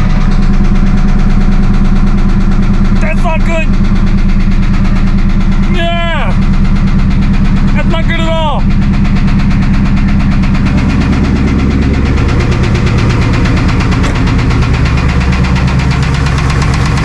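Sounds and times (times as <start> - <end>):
car engine idling with rod knock: 0.0 - 17.0.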